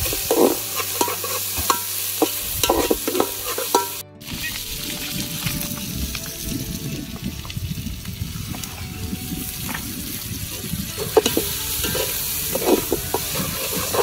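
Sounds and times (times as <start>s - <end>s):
metal ladle scraping a pot: 0.0s - 4.7s, 9.8s - 14.0s
vegetables sizzling in a pot: 0.0s - 6.7s, 9.3s - 14.0s.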